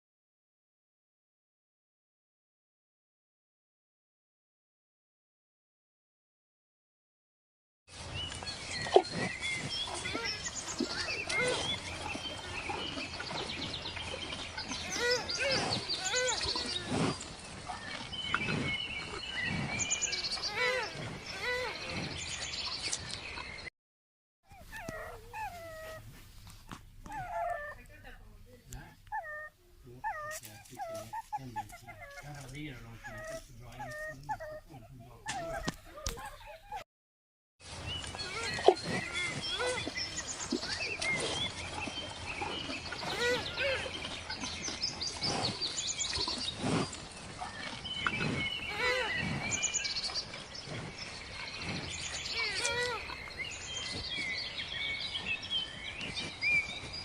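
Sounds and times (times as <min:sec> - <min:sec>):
bird chirps: 0:08.1 - 0:23.7, 0:37.7 - 0:57.0
dog whimpering: 0:14.9 - 0:16.8, 0:24.5 - 0:26.0, 0:27.1 - 0:27.8, 0:29.1 - 0:36.8.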